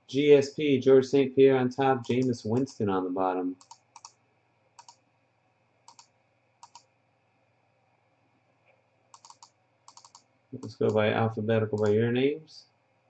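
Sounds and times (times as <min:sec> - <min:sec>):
faint computer mouse clicks: 0:03.6 - 0:04.2, 0:04.8 - 0:05.0, 0:05.9 - 0:06.9, 0:08.6 - 0:11.0.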